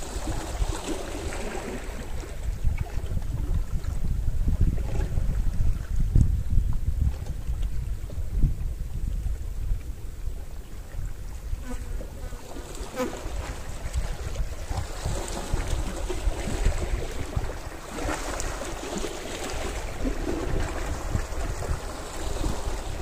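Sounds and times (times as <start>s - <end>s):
sea waves washing ashore: 0.0s - 2.6s, 12.4s - 23.0s
wind on microphone: 0.0s - 23.0s.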